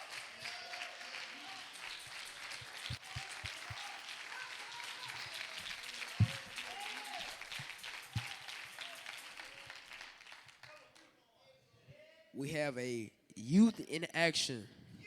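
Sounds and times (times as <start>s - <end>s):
congregation applauding: 0.0s - 11.1s.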